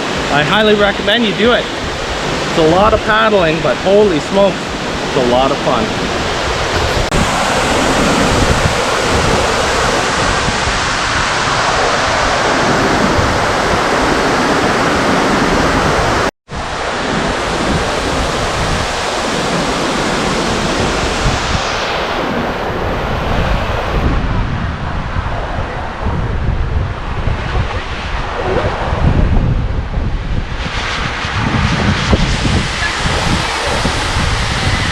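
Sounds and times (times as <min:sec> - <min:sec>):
waterfall rushing: 0:00.0 - 0:24.0, 0:32.4 - 0:34.9.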